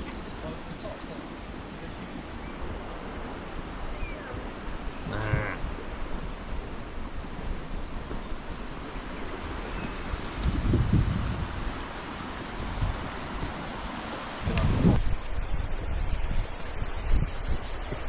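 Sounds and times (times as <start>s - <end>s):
river water rushing: 0.0s - 15.0s
wind: 0.0s - 18.0s
wind buffeting microphone: 0.0s - 18.0s
animal call: 5.0s - 5.6s.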